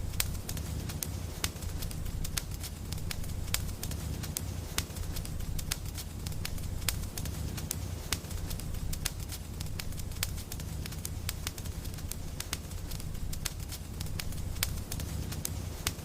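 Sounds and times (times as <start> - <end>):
low rumble of burning: 0.0 - 16.0
wood fire crackling: 0.0 - 16.0.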